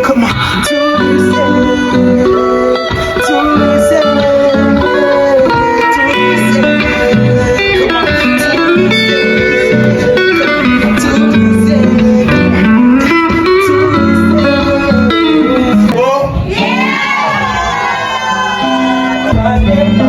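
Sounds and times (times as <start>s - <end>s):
guitar-led song: 0.0s - 20.0s.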